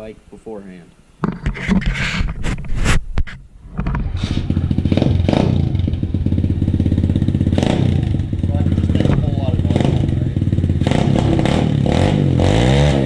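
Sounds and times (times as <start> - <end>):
pit bike engine running: 4.0 - 13.0.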